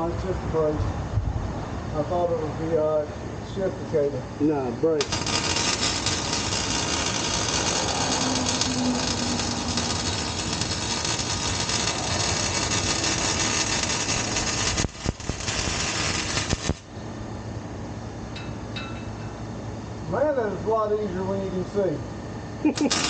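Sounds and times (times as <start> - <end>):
welding arc crackling and hissing: 4.9 - 16.9, 22.6 - 23.0.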